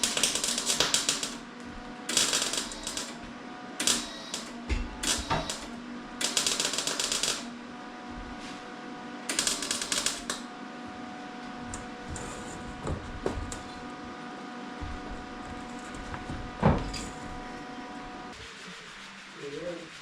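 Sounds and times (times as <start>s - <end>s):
welder crackling: 0.0s - 1.4s, 9.3s - 10.4s
steady hum: 7.4s - 20.0s.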